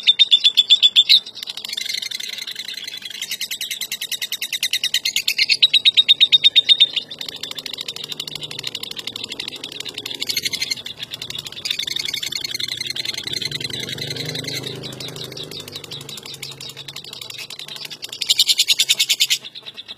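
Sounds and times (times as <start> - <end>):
lovebird rapid rattling chatter: 0.0 - 19.9.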